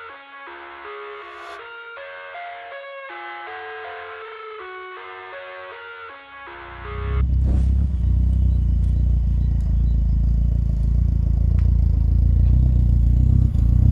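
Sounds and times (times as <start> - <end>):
car engine running steadily: 6.9 - 13.9.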